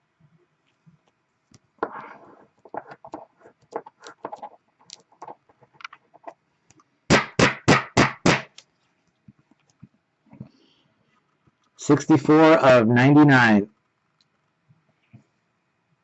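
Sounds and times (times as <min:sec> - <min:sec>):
trading cards rustling: 0:02.6 - 0:06.4.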